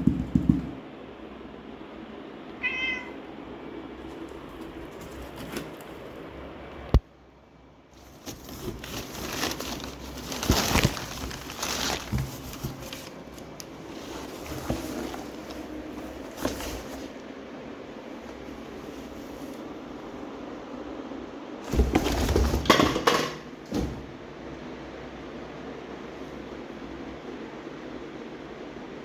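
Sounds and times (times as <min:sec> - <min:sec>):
cat scuffling and rustling: 0:08.0 - 0:17.4.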